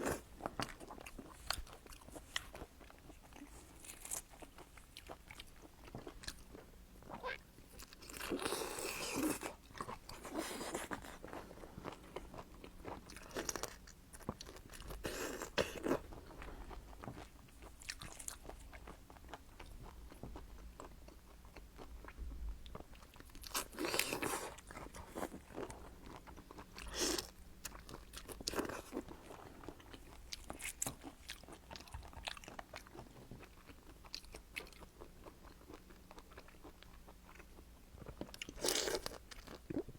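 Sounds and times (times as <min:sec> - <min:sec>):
crunching and chewing food: 0:00.0 - 0:39.9.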